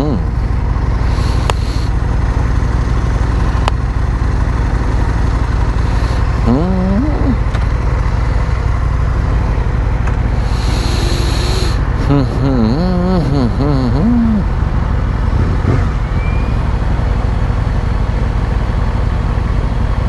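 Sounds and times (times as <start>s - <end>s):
motorcycle engine drone: 0.0s - 20.0s
brief voice: 6.4s - 7.5s.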